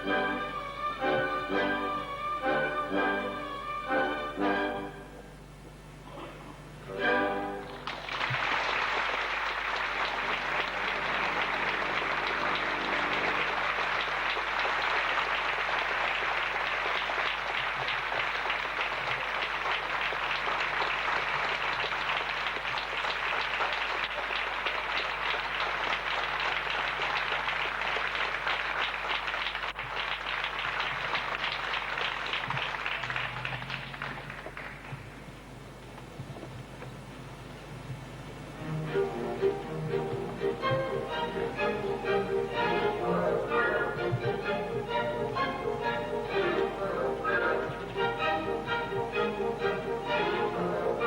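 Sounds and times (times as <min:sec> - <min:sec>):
audience applauding: 0:07.6 - 0:35.5.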